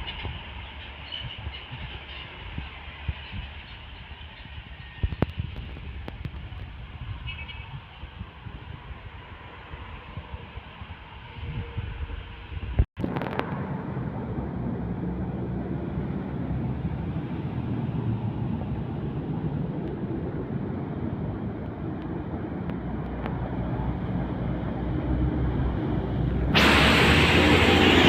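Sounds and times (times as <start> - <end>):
truck diesel engine passing: 13.5 - 28.0.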